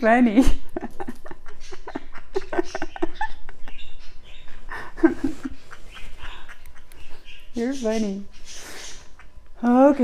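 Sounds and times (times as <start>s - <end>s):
parrot chuckling: 0.4s - 7.4s.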